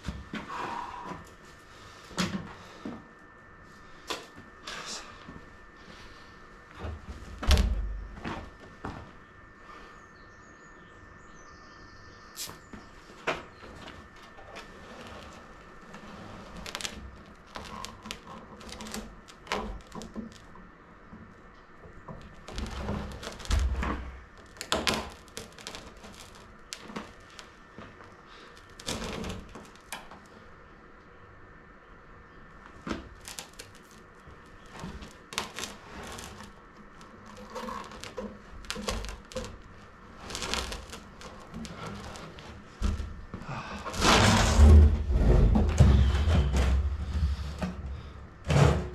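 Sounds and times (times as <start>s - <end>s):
faint high tone hum: 0.0s - 19.3s, 29.7s - 37.5s.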